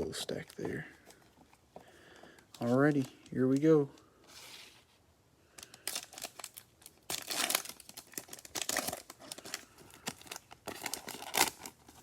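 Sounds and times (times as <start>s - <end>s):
plastic wrapper tearing and crinkling: 5.6s - 12.0s.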